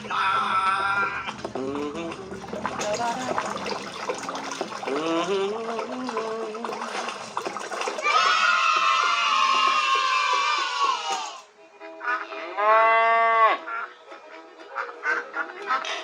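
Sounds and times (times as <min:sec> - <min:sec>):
voices: 0:00.0 - 0:07.3.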